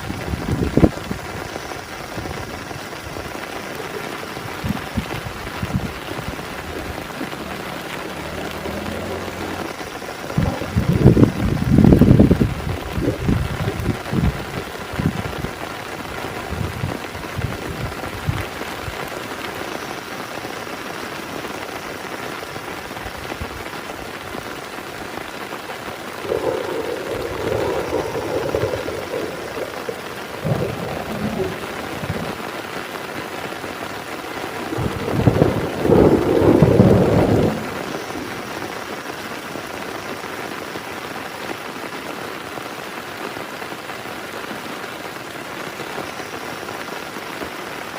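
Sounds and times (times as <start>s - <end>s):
thunder rumbling: 0.0s - 19.1s, 26.0s - 39.1s
heavy rain: 0.0s - 47.9s.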